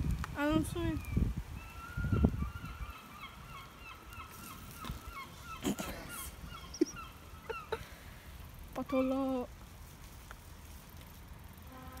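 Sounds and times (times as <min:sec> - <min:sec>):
bird calling: 0:00.4 - 0:08.0, 0:08.8 - 0:09.5.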